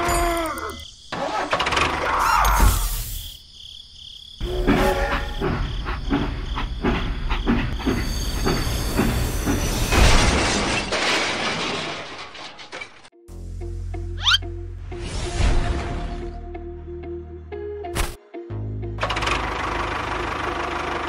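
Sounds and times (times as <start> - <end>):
train wheels clacking on track: 4.6 - 9.9.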